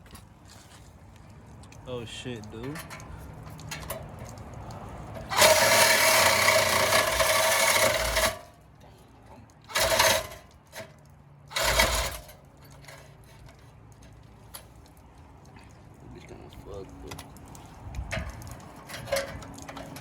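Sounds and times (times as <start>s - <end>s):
power saw cutting metal pipe: 5.3s - 8.6s, 9.7s - 10.8s, 11.5s - 13.1s.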